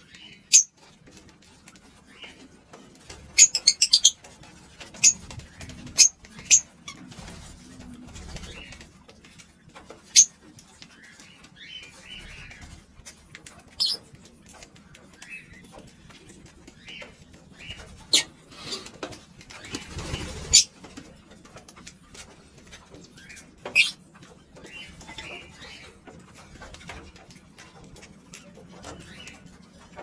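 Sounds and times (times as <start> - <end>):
lovebirds chirping: 0.0 - 0.7, 3.4 - 4.2, 13.7 - 14.0, 19.7 - 20.7, 23.2 - 24.0
soft bird chatter: 0.0 - 30.0.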